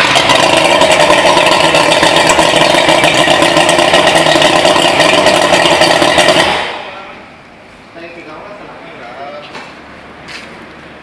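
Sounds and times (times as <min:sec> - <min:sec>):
boat engine running: 0:00.0 - 0:07.0.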